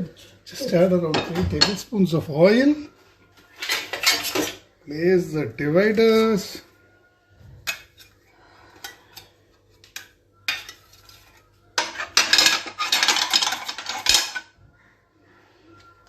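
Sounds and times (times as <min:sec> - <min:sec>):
metal clattering and scraping: 0:11.8 - 0:14.5.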